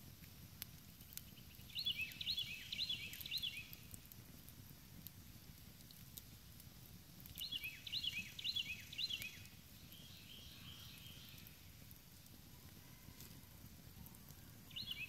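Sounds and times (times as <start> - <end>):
campfire crackling and popping: 0.0 - 15.0
faint bird chirping: 0.8 - 4.0, 7.3 - 15.0.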